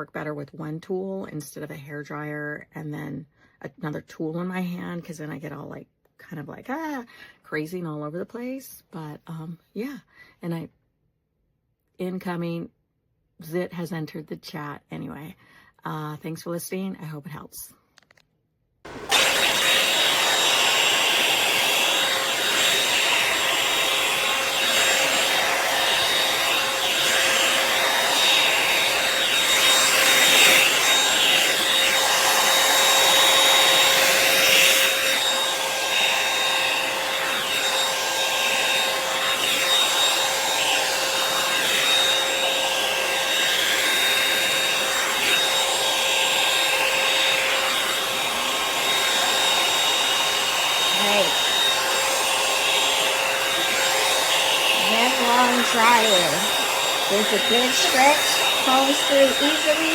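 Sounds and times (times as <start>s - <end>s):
hair dryer brush whining fan: 18.9s - 59.9s.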